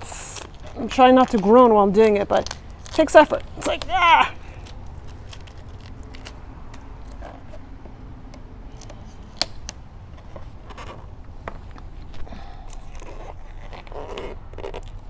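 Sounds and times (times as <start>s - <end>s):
vinyl film peeling crackle: 0.0s - 7.6s, 11.9s - 15.0s.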